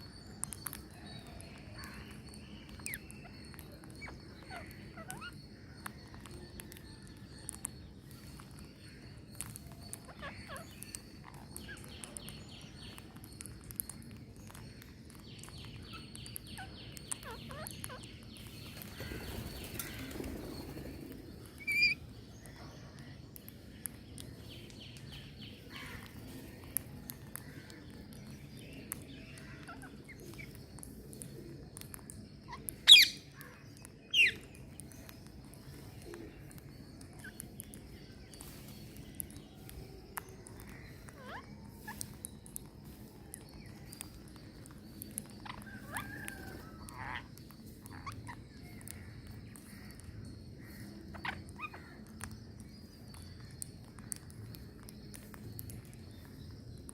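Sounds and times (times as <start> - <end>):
soft bird chirps: 0.0 - 56.9
parrots squawking: 41.1 - 42.0, 45.4 - 48.9.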